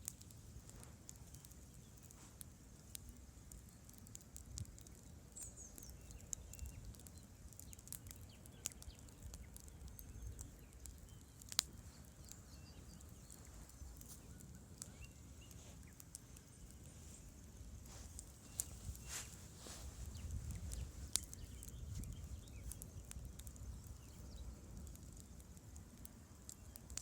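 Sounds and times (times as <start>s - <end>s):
campfire crackling and popping: 0.0s - 27.0s
steady low rumble: 12.8s - 25.8s.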